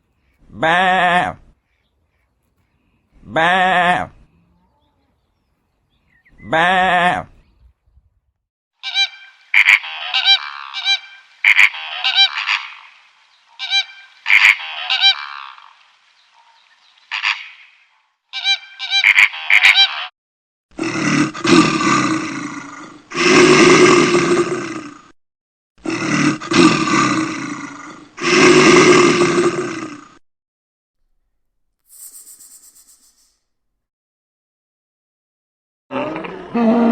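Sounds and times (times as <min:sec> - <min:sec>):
geese honking: 0:08.8 - 0:20.1
large animal roaring: 0:20.7 - 0:25.1, 0:25.8 - 0:30.2, 0:35.9 - 0:36.9.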